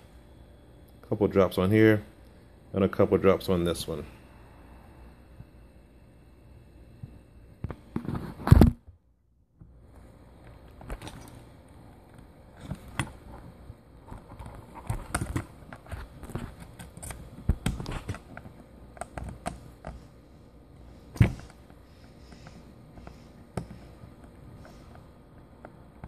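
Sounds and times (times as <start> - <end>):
small clicks and taps of parts: 14.0 - 20.0.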